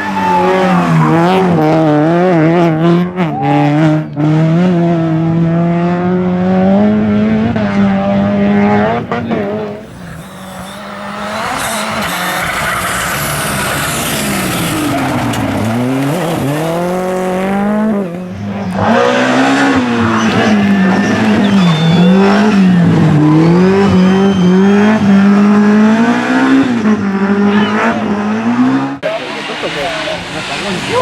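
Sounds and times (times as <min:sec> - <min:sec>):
rally car engine revving: 0:00.0 - 0:31.0
tyre squeals: 0:09.2 - 0:24.9.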